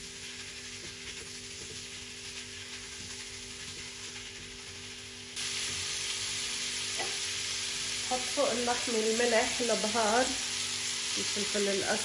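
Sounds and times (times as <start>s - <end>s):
spatula stirring in a pan: 0.0s - 7.2s
meat and onions sizzling in a pan: 0.0s - 12.0s.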